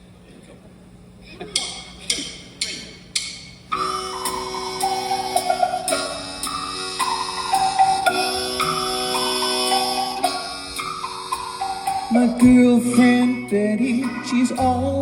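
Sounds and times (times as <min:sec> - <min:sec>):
live band playing: 0:03.7 - 0:15.0.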